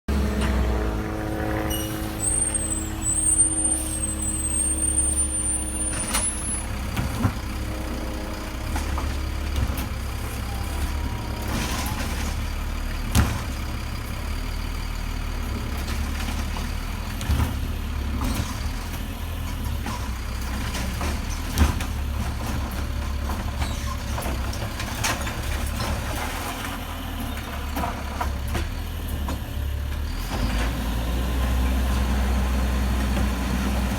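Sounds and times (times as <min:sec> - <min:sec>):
truck engine running: 0:00.1 - 0:33.9
thin high squeal: 0:01.6 - 0:06.7.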